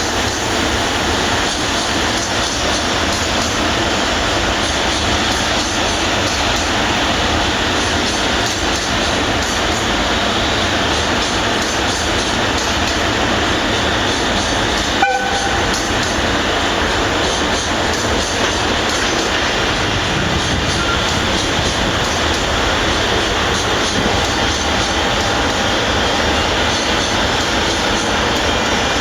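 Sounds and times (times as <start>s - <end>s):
train wheels rumbling on rails: 0.0s - 29.0s
train horn toot: 15.0s - 15.9s.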